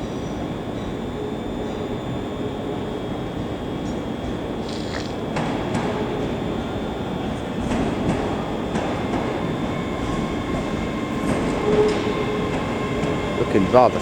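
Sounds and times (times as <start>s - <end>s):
train wheels rumbling: 3.8s - 14.0s
wheels clacking over rail joints: 7.7s - 14.0s.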